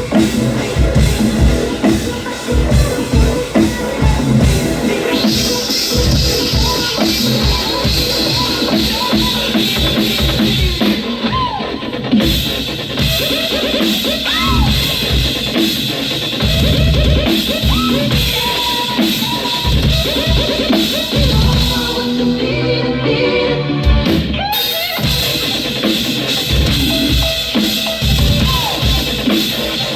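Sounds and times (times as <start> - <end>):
bass drum and snare: 0.0 - 11.2
band playing instrumental: 0.0 - 29.9.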